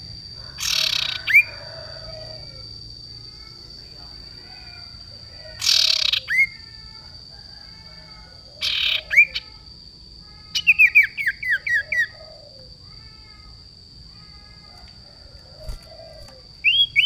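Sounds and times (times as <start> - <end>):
faint bird chirping: 0.0 - 17.0
songbird rasping and whistling: 0.6 - 2.4, 5.5 - 6.7, 8.3 - 9.6, 10.5 - 12.8, 15.2 - 17.0.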